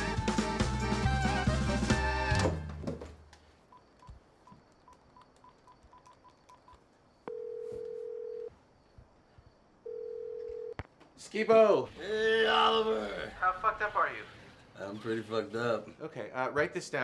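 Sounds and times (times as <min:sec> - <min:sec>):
phone keypad beeps: 0:04.9 - 0:08.5
phone ringback tone: 0:05.9 - 0:08.5, 0:09.8 - 0:10.8.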